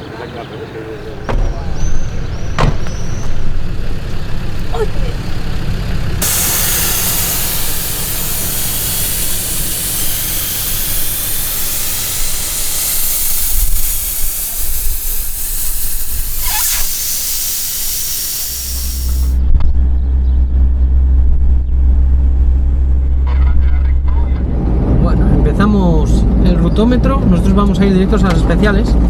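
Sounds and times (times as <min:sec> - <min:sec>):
wind and road noise hiss: 0:00.8 - 0:19.4
vehicle driving rumble: 0:00.8 - 0:26.6.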